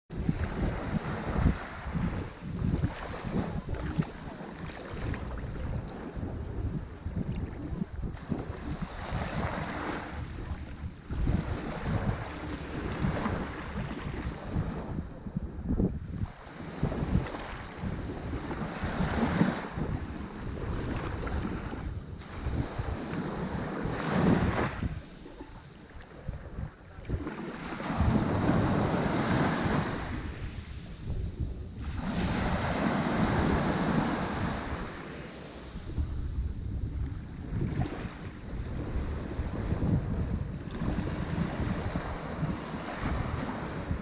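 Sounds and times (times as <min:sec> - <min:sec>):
ocean waves breaking: 0:00.1 - 0:15.1, 0:16.2 - 0:44.0
wind buffeting microphone: 0:00.1 - 0:44.0
ocean surf breaking: 0:27.1 - 0:39.0.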